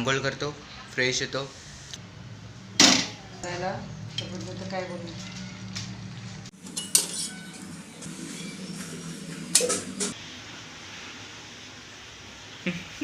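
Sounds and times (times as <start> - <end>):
dishes and utensils clattering: 6.6 - 10.2.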